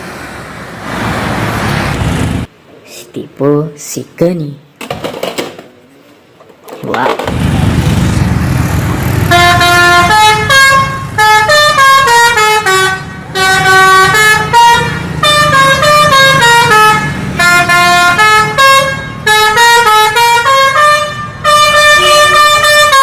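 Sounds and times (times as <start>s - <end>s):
engine rumble sound effect: 7.2s - 10.1s.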